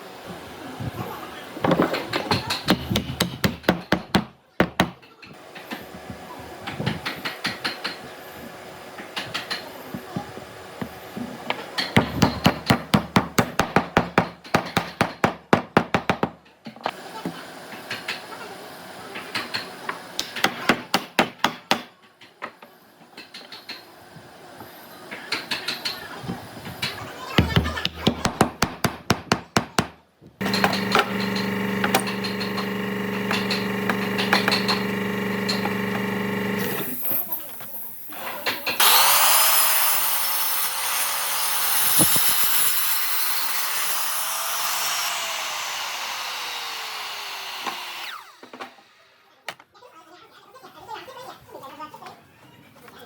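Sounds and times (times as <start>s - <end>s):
hammer striking wood: 2.4s - 5.0s, 12.0s - 16.4s, 27.4s - 36.6s
electric power tool humming: 30.4s - 37.4s, 38.5s - 49.0s.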